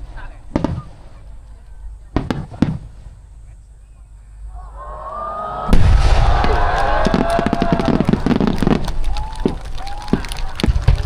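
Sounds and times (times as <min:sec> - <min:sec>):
firework bangs and crackling: 0:00.0 - 0:03.5, 0:05.7 - 0:11.0
whistling firework shells: 0:05.7 - 0:11.0.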